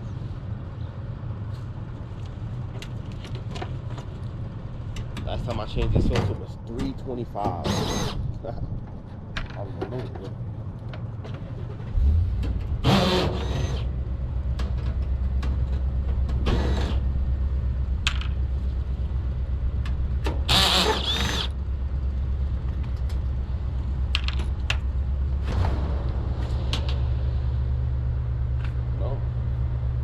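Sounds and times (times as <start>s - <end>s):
motor humming: 12.7s - 13.9s, 20.4s - 21.6s.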